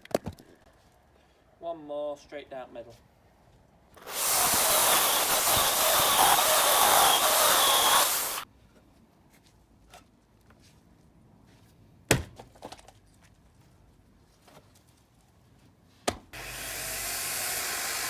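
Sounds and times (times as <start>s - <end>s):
chainsaw cutting through log: 4.0s - 8.4s, 16.4s - 18.0s.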